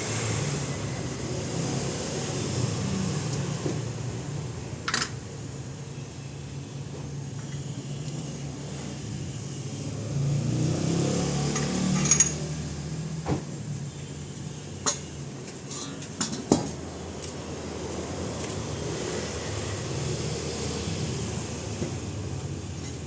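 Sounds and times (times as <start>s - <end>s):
sharp metallic clinks and knocks: 11.5s - 12.5s.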